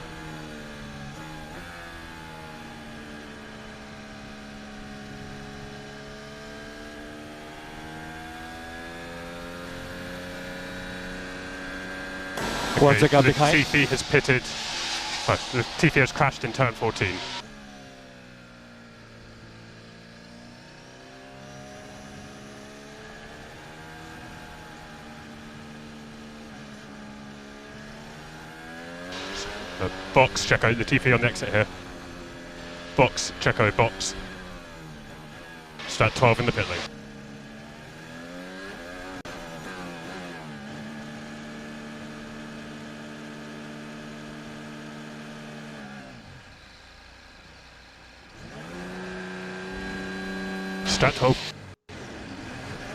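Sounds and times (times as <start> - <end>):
racing car engine at low revs: 0.0 - 52.9.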